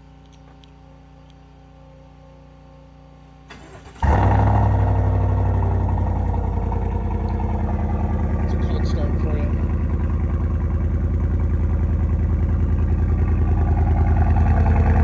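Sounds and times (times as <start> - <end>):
engine cranking: 3.5 - 11.9
loud truck engine running: 3.5 - 15.0.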